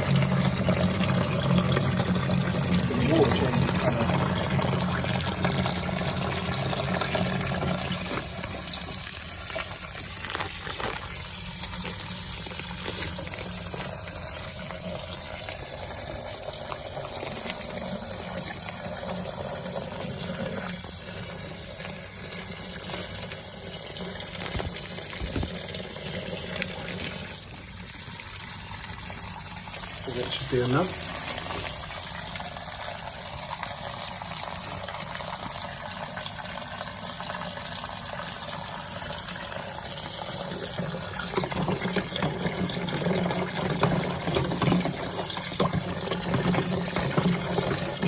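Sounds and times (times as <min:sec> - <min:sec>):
liquid pouring into water: 0:00.0 - 0:48.0.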